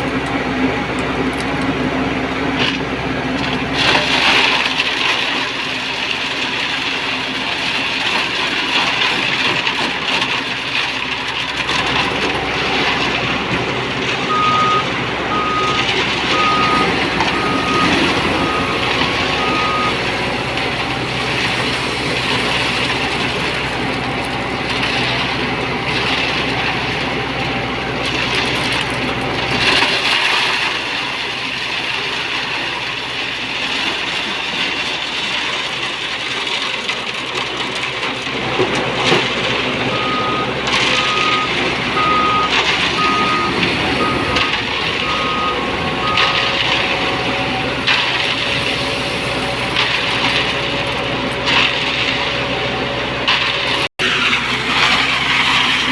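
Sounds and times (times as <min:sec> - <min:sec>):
diesel engine running: 0:00.0 - 0:55.9
reversing alarm beeping: 0:14.2 - 0:20.2, 0:39.9 - 0:47.6.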